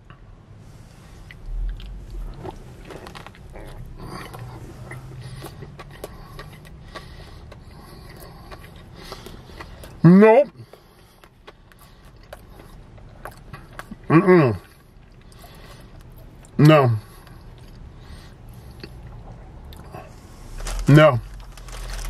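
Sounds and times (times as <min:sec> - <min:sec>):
man chewing food: 0:01.0 - 0:20.6
low bump: 0:01.3 - 0:03.5.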